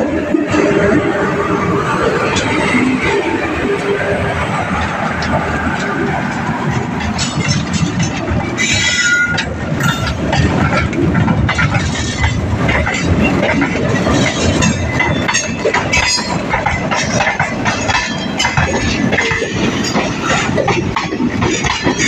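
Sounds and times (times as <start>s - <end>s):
passenger train rumbling: 0.0s - 22.0s
wheels clattering over rail joints: 5.2s - 22.0s.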